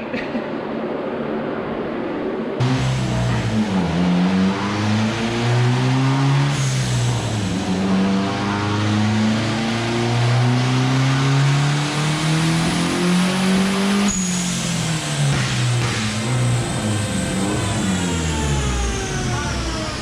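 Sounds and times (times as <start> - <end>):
car engine revving: 2.4 - 20.0
high whistle: 14.1 - 14.7.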